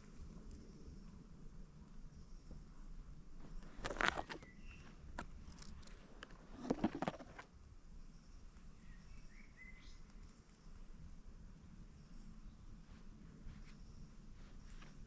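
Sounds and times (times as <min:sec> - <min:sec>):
faint bird chirps: 0:04.4 - 0:06.0, 0:08.0 - 0:15.0.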